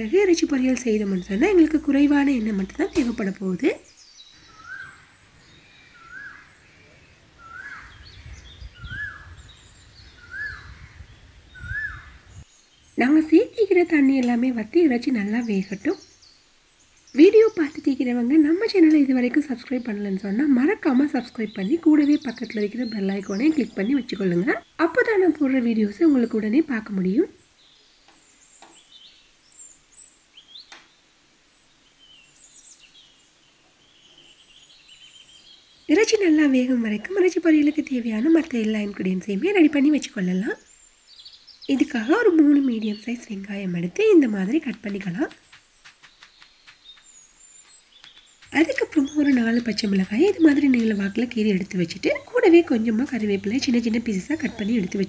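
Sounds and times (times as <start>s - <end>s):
faint high bird chirps: 0.0s - 14.0s, 31.7s - 55.0s.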